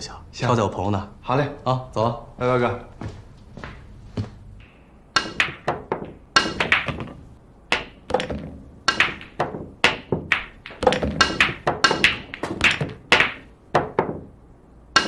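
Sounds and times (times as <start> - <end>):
billiard balls clicking: 5.2 - 15.0.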